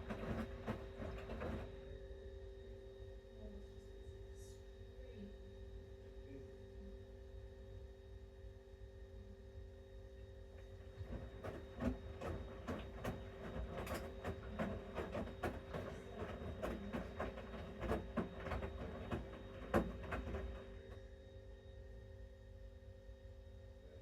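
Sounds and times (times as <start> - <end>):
laundry tumbling in washing machine: 0.0 - 2.0, 10.6 - 21.0
steady machine hum: 0.0 - 24.0.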